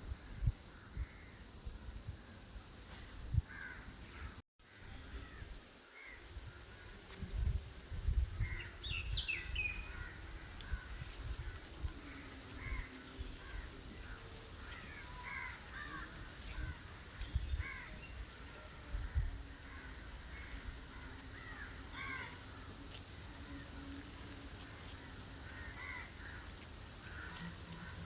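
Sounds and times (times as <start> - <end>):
birds calling: 8.4 - 28.0.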